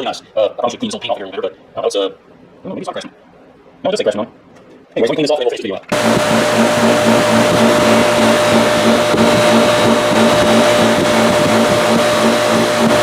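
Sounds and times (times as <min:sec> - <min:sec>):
bench buffer motor humming: 0:05.9 - 0:13.0.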